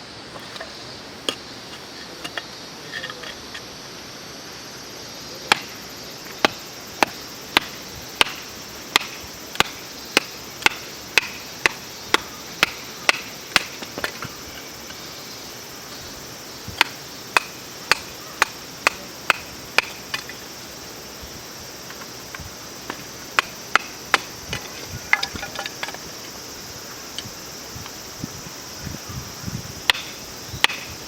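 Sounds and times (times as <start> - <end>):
insects droning: 0.0 - 31.0
firewood being chopped: 5.4 - 5.8, 6.4 - 14.3, 16.7 - 20.4, 22.8 - 26.0, 29.9 - 31.0.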